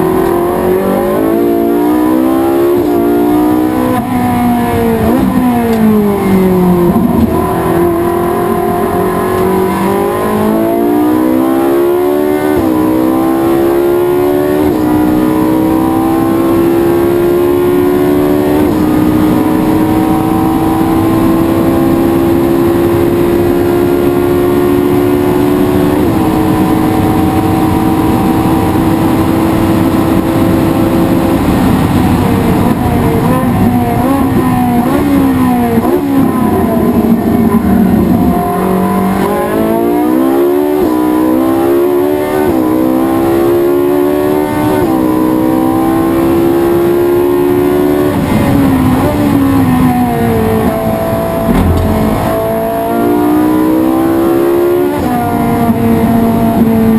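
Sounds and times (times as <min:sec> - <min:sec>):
race car engine accelerating: 0:00.0 - 0:56.9
engine throttle blips: 0:22.7 - 0:56.9.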